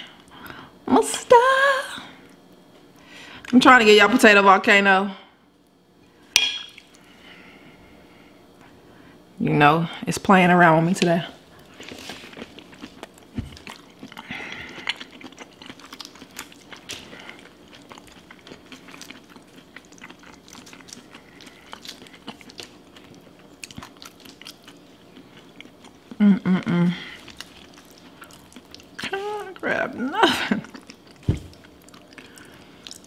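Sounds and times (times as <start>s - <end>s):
wet chewing and lip smacking: 12.2s - 26.2s, 27.2s - 29.6s, 30.6s - 33.0s.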